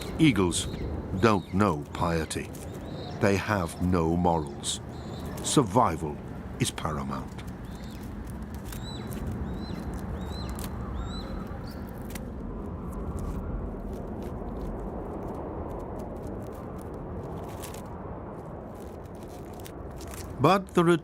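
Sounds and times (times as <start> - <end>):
eagle chirping calls: 0.0 - 6.1, 6.8 - 11.9
low rumble: 0.0 - 20.4.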